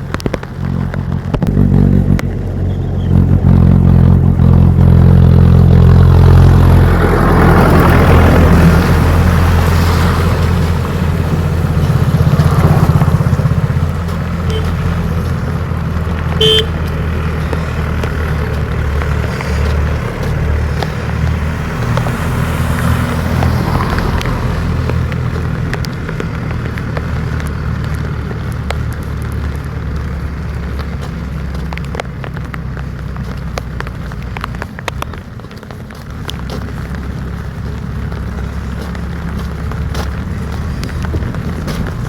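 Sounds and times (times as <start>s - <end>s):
low engine-like rumble: 0.0s - 42.0s
short high beep: 16.4s - 16.7s.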